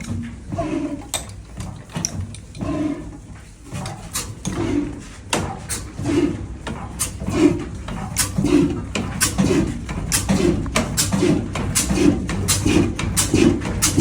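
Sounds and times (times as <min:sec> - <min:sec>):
old engine puffing: 0:00.0 - 0:14.0
metallic clicks and clanks: 0:01.0 - 0:02.8.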